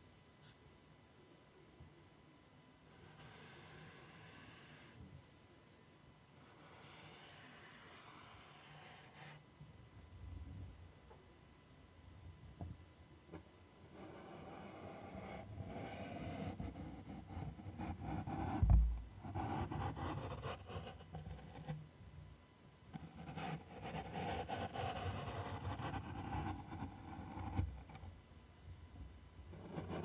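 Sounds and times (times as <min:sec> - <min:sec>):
dull low thump: 0:18.6 - 0:19.1.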